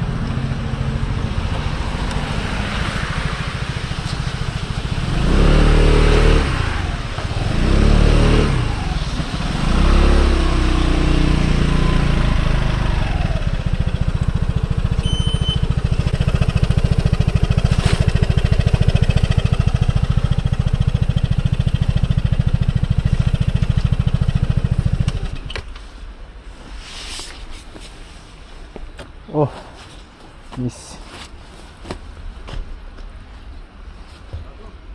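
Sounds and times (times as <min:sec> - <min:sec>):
scooter engine revving and idling: 0:00.0 - 0:25.6.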